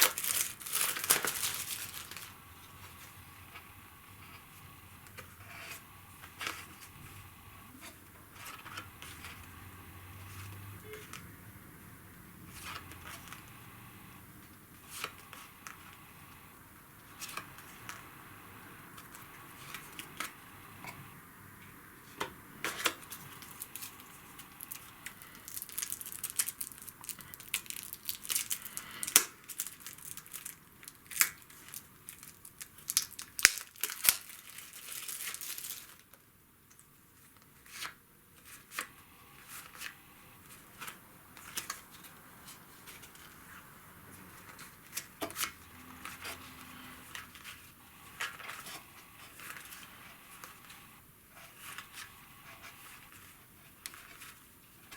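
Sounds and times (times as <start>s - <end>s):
plastic and paper crinkling: 0.0s - 9.6s, 12.4s - 13.6s, 18.9s - 21.0s, 22.0s - 54.9s.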